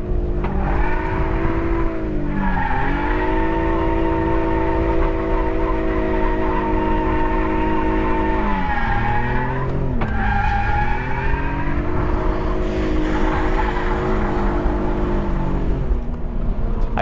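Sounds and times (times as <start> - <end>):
car engine at high revs: 0.0 - 17.0
tyre squeal: 2.4 - 15.4.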